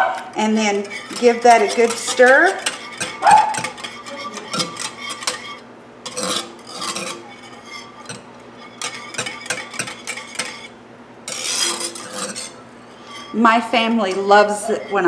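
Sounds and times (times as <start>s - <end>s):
liquid swishing: 0.0s - 15.0s.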